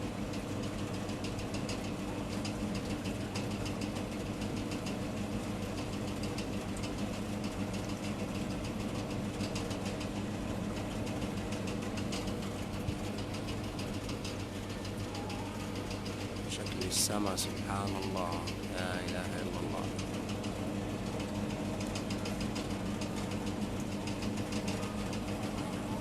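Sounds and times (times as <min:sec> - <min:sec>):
low mechanical hum: 0:00.0 - 0:26.0
rain drops ticking: 0:00.3 - 0:15.1.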